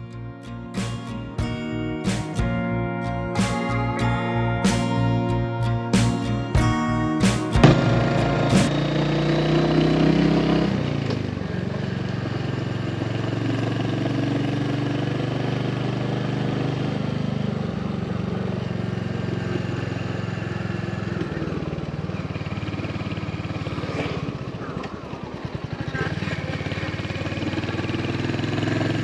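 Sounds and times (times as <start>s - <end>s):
motorcycle engine running: 7.5s - 14.8s.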